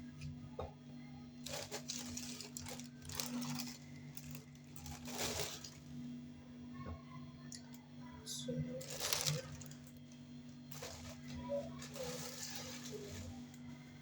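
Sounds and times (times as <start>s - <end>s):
steady low hum: 0.0s - 14.0s
plastic bag rustling: 1.4s - 6.1s, 8.7s - 13.6s.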